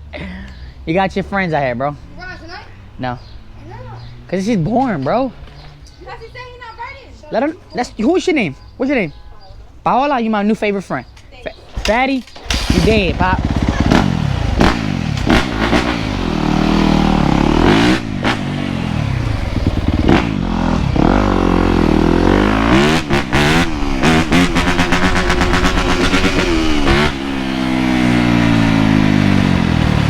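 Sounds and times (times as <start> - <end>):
dirt bike engine revving: 12.4 - 30.0.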